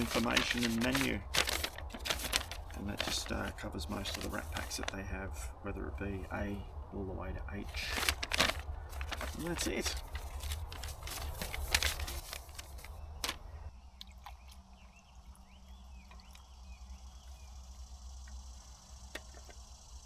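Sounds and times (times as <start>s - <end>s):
plastic packaging rustling: 0.0s - 4.9s, 7.6s - 13.6s
faint chirps: 12.8s - 20.0s.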